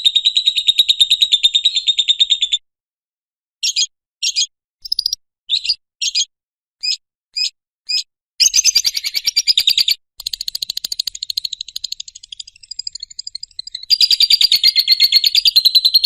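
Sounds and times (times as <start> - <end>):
lovebird chirps and trill: 3.6 - 16.0.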